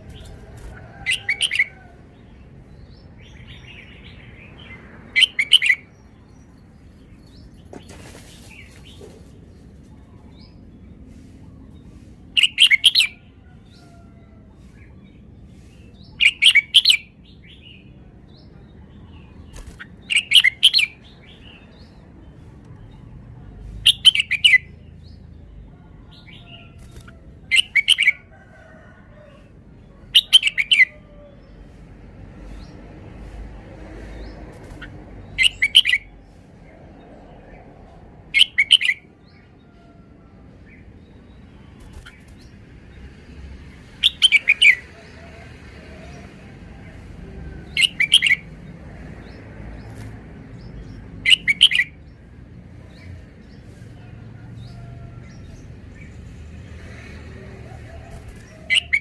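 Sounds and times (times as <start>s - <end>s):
bird singing bright notes: 34.8s - 36.1s.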